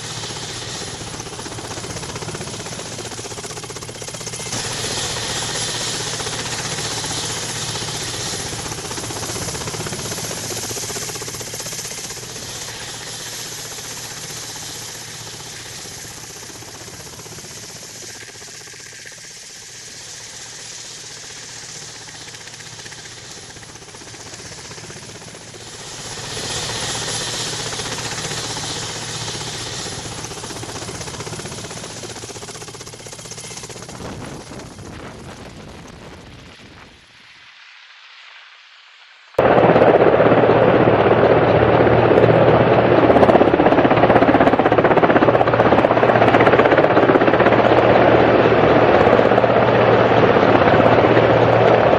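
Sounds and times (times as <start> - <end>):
turbine hiss: 0.0 - 35.0
helicopter rotor chop: 0.0 - 36.5, 39.4 - 51.9.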